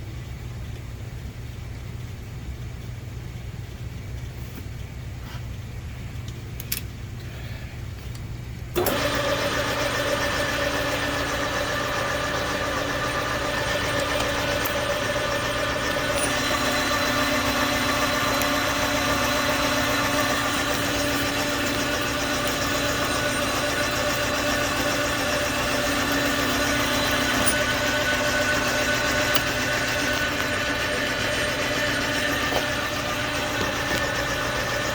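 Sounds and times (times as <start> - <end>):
lathe cutting metal: 8.8 - 34.9
machine whining tones: 8.8 - 34.9.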